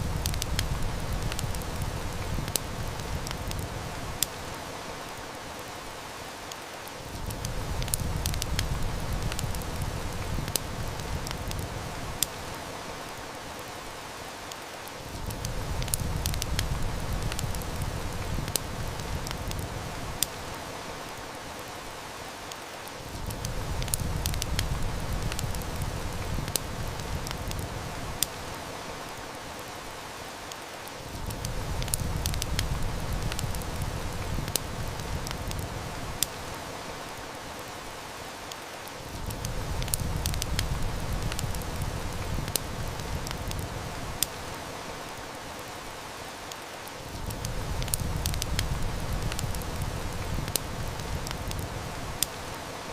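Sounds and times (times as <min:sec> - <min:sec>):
heavy rain hissing: 0:00.0 - 0:52.9
wood fire crackling: 0:00.0 - 0:52.9.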